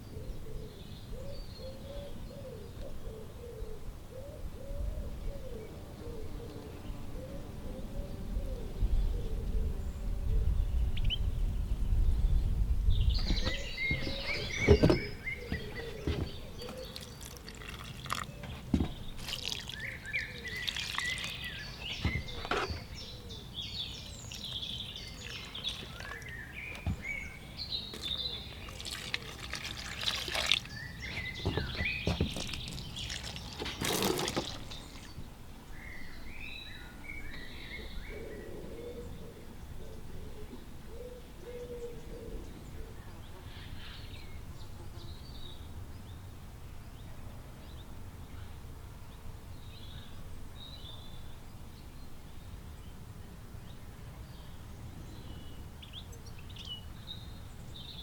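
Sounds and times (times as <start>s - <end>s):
small birds chirping: 10.0s - 46.2s
water splashing and dripping: 16.8s - 18.4s, 19.1s - 21.6s, 25.2s - 26.9s, 28.0s - 35.2s.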